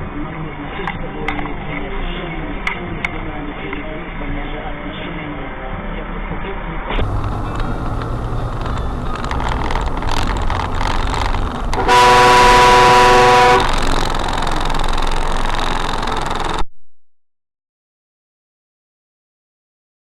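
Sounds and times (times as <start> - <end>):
vehicle road noise: 0.0 - 16.6
loud vehicle horn: 11.8 - 13.8.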